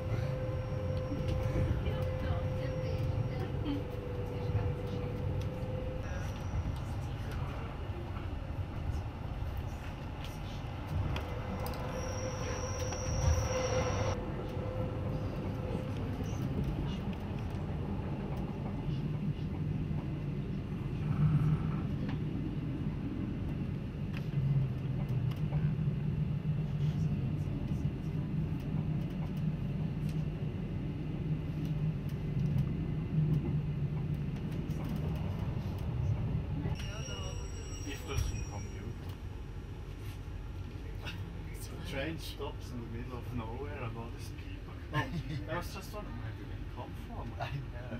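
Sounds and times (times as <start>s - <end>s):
train wheels rumbling on track: 0.0s - 47.9s
high wheel squeal: 11.5s - 14.2s.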